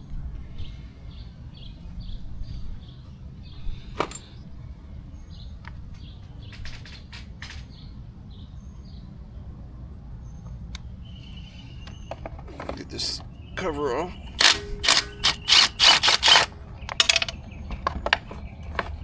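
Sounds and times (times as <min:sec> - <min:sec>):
small birds chirping: 0:00.6 - 0:09.4, 0:10.2 - 0:19.0
tools clicking and knocking: 0:14.4 - 0:19.0.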